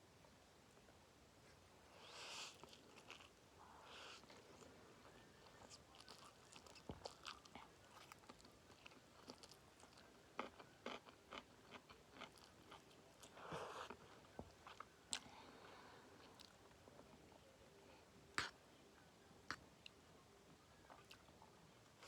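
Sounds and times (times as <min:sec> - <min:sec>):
chewing and biting food: 0:05.4 - 0:15.3.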